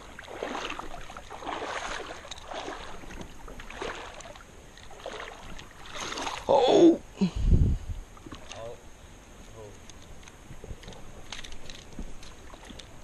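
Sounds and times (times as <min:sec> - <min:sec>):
small water splashes: 0:00.0 - 0:06.7, 0:08.1 - 0:08.7, 0:10.8 - 0:13.0
person wading through creek water: 0:00.0 - 0:07.2, 0:08.0 - 0:13.0.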